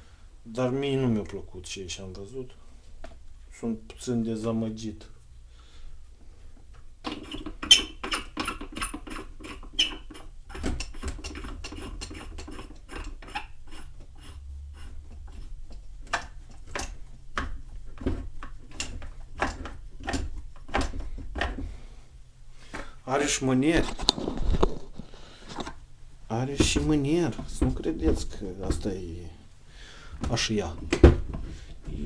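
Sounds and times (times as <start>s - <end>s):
sharp clicks of plastic parts: 15.7s - 21.6s.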